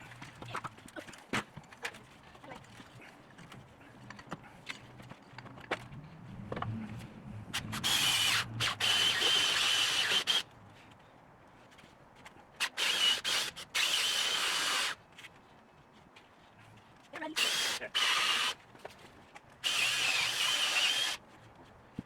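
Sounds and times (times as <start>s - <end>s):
power drill whining: 7.8s - 10.4s, 12.8s - 15.0s, 17.4s - 18.6s, 19.6s - 21.2s.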